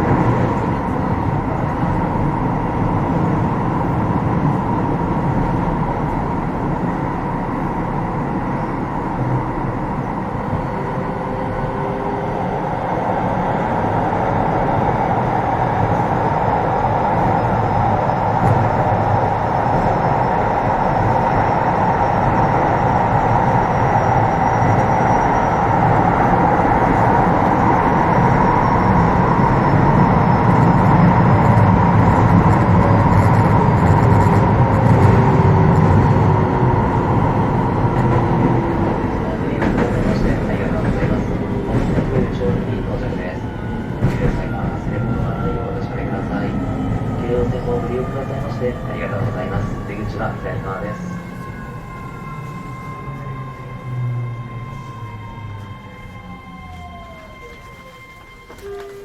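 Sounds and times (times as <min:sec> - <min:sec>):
train wheels rumbling on rail: 0:00.0 - 0:59.0
faint high tone: 0:56.8 - 0:59.0.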